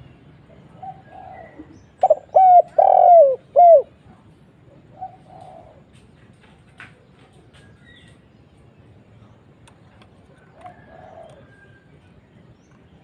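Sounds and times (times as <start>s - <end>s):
dove cooing: 0.6s - 4.0s, 4.7s - 6.0s, 10.4s - 11.8s.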